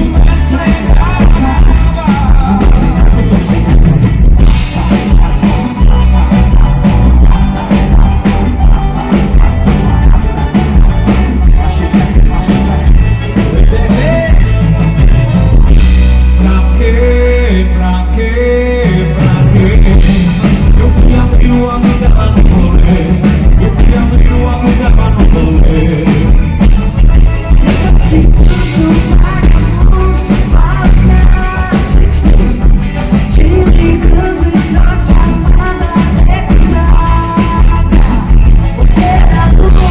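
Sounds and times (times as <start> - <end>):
drum beat: 0.0 - 16.2
band playing amplified music: 0.0 - 39.9
person singing: 0.0 - 39.9.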